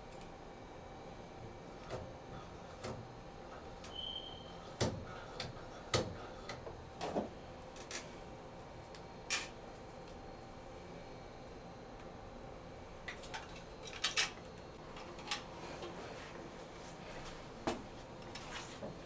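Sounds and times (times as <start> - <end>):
brief high squeak: 3.9 - 4.5.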